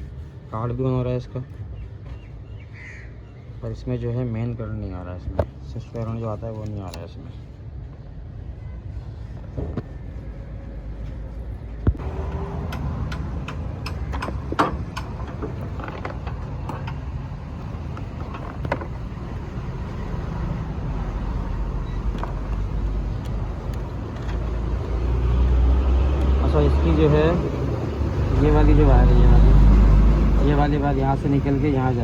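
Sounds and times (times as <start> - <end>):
vehicle rumble: 3.9 - 32.0
clicks and knocks handling parts: 11.8 - 19.4, 22.0 - 24.7.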